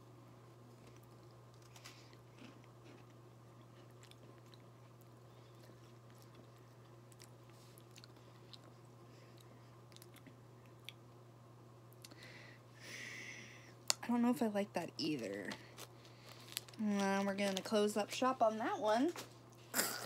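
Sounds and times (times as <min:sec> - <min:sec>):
low steady hum: 0:00.0 - 0:20.0
biscuit crunching: 0:00.6 - 0:11.0, 0:15.4 - 0:17.7.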